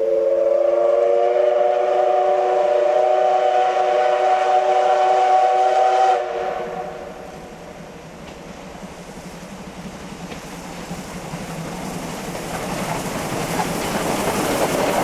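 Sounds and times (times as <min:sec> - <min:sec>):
steam locomotive whistle: 0:00.0 - 0:07.4
train hiss and running noise: 0:00.0 - 0:15.0.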